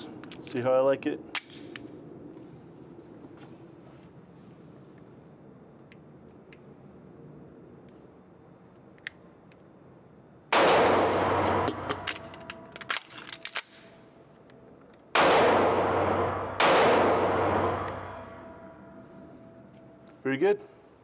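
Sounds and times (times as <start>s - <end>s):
pistol shots ringing out: 10.5s - 12.4s, 15.1s - 18.8s.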